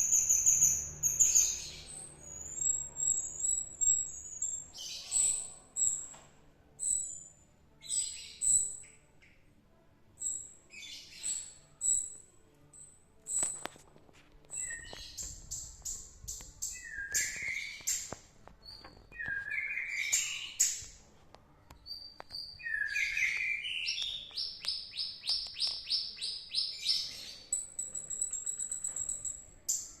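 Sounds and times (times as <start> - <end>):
songbird singing: 0.0 - 6.2, 14.5 - 21.0, 21.8 - 30.0.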